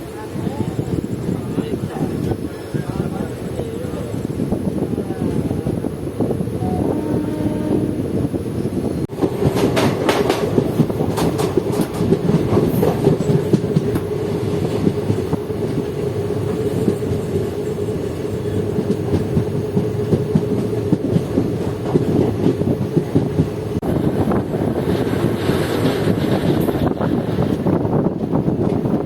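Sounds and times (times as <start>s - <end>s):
train coaches rumbling on track: 0.0s - 29.0s
wheels clattering over rail joints: 9.1s - 29.0s.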